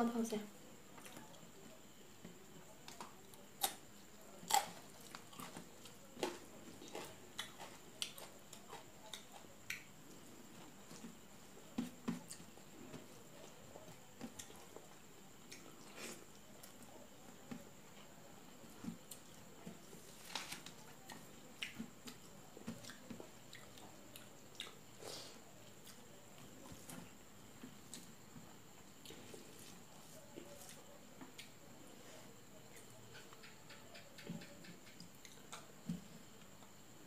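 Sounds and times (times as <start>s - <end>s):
wet chewing: 4.4s - 11.2s.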